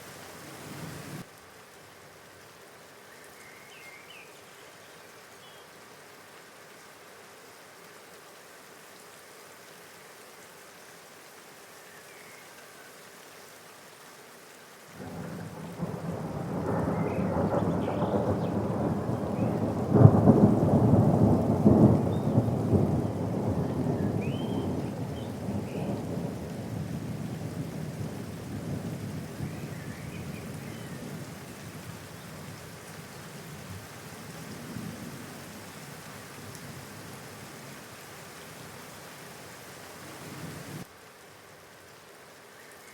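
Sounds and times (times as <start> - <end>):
steady rain: 0.0 - 42.9
thunder rolling: 15.0 - 27.1.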